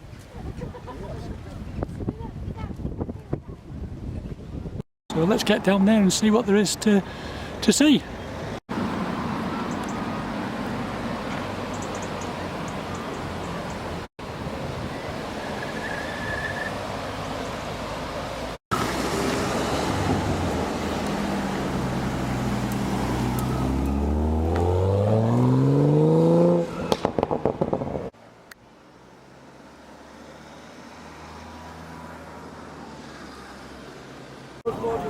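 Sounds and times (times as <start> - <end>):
car engine accelerating hard: 18.7 - 27.8.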